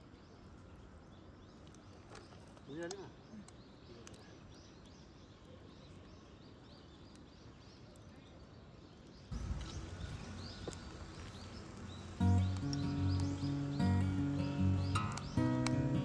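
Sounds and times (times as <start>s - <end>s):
small birds chirping: 0.0s - 16.0s
low rumble: 9.3s - 15.2s
steady background hiss: 9.3s - 16.0s.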